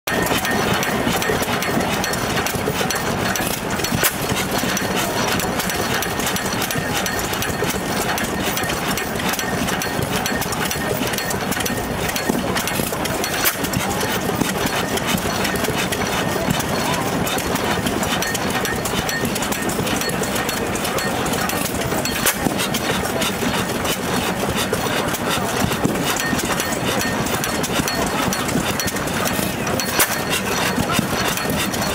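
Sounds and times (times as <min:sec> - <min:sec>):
small mechanical clicks: 0:00.1 - 0:31.9
stationary engine running: 0:00.1 - 0:31.9.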